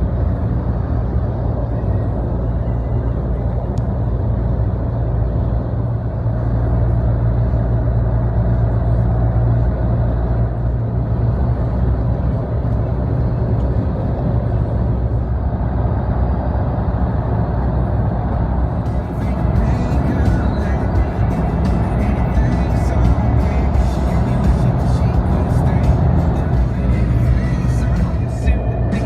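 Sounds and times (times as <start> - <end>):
engine and road drone: 0.0 - 29.0.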